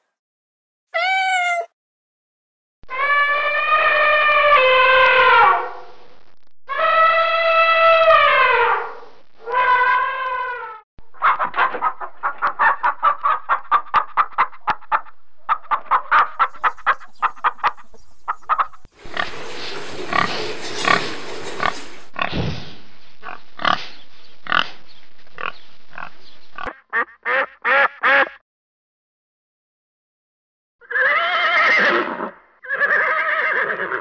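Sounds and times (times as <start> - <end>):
short quick animal calls: 1.0 - 1.7
elephant trumpeting: 3.0 - 5.8
pigs grunting and squealing: 16.3 - 22.4.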